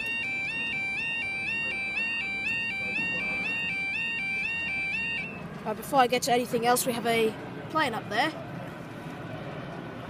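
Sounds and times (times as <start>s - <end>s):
level crossing warning alarm: 0.0s - 5.6s.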